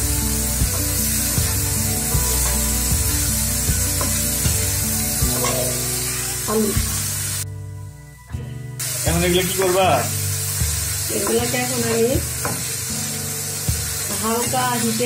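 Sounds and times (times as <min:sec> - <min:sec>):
vegetables sizzling in oil: 0:00.0 - 0:07.4, 0:08.8 - 0:15.0
background music with a beat: 0:00.0 - 0:14.2.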